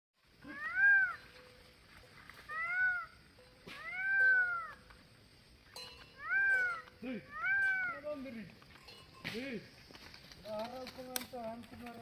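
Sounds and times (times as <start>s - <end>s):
peacock wailing cries: 0.4s - 1.4s, 2.4s - 5.0s, 6.2s - 8.1s.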